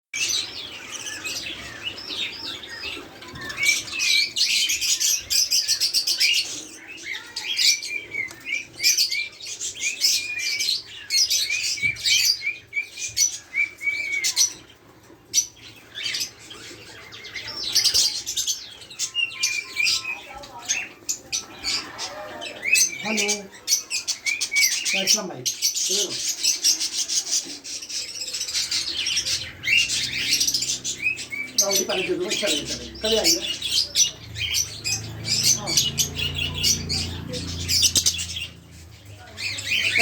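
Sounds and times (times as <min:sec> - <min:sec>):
budgerigars chirping: 0:15.3 - 0:40.0.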